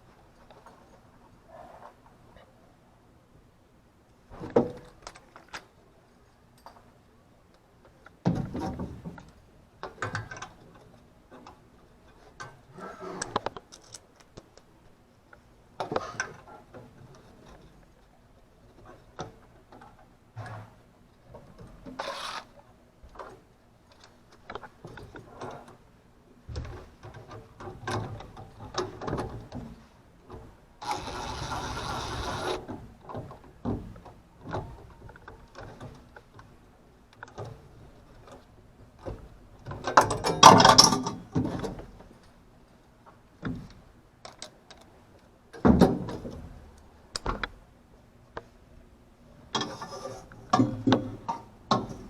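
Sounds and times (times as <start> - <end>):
clicking and rattling hand work: 13.2 - 14.7, 21.4 - 25.8.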